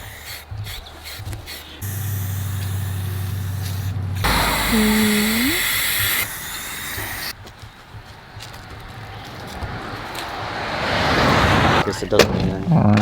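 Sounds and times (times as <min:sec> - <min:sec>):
spray-paint can hissing: 0:00.0 - 0:07.3
steady low hum: 0:01.8 - 0:07.3.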